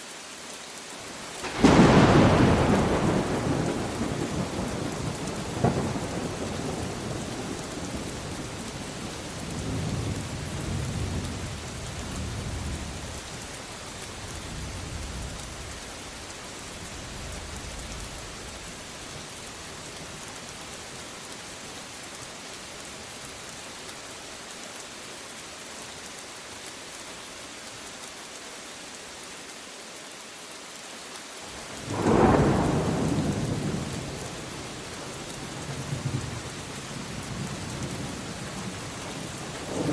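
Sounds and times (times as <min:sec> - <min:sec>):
steady rain hissing: 0:00.0 - 0:39.9
loud thunder crack: 0:01.4 - 0:07.0, 0:31.9 - 0:34.0
rolling thunder: 0:01.4 - 0:08.5, 0:31.8 - 0:34.8, 0:39.5 - 0:39.9.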